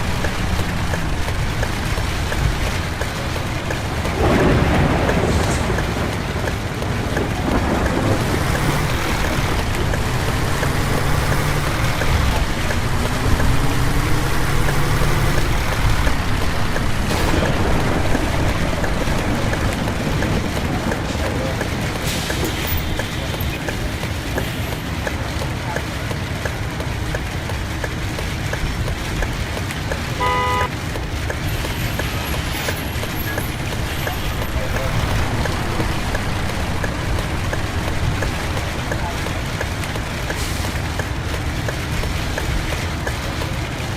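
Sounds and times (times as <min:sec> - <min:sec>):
bus engine humming: 0:00.0 - 0:43.9
heavy rain: 0:00.0 - 0:43.9
light ticking: 0:00.0 - 0:43.9
wet road noise: 0:00.0 - 0:43.9
vehicle horn toot: 0:30.2 - 0:30.8.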